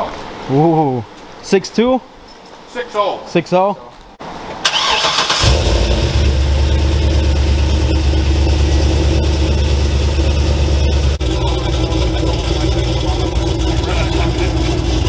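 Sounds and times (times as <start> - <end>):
car engine idling: 4.7 - 15.0.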